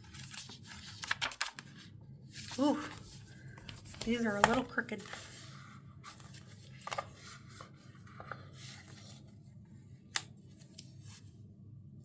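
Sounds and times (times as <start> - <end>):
paper stickers rustling: 0.0 - 9.2.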